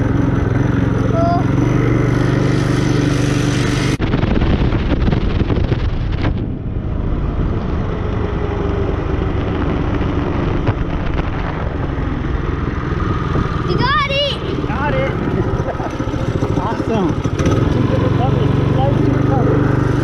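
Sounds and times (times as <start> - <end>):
small motorbike engine running: 0.0 - 4.0, 8.4 - 20.0
wind buffeting microphone: 3.3 - 20.0.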